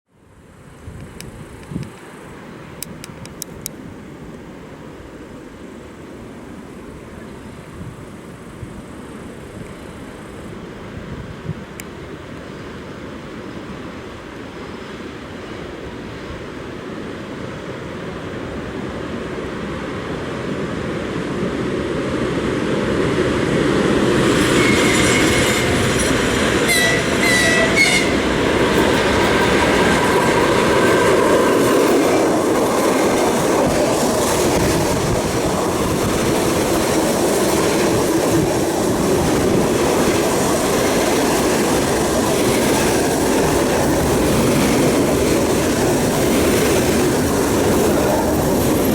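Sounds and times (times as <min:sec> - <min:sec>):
train rumble: 0:17.2 - 0:48.9
wheels clattering over rail joints: 0:24.0 - 0:48.9
train horn blasts: 0:24.5 - 0:28.6.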